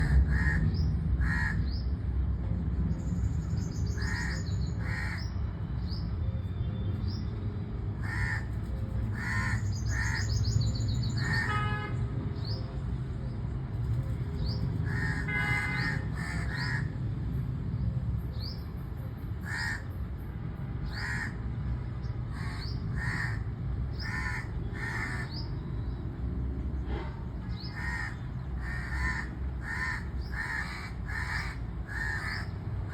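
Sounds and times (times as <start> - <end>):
crow cawing: 0.0 - 0.6, 1.2 - 1.6, 4.0 - 5.3, 8.0 - 8.5, 9.1 - 10.3, 14.9 - 16.9, 19.4 - 19.9, 20.9 - 21.4, 22.3 - 23.4, 24.0 - 25.4, 27.7 - 32.9.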